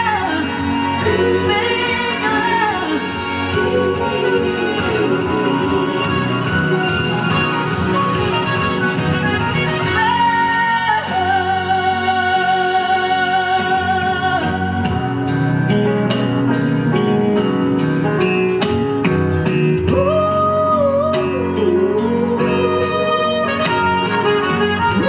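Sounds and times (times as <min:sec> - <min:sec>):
ballad backing track with guitar: 0:00.0 - 0:25.0
steady beat: 0:03.0 - 0:10.0.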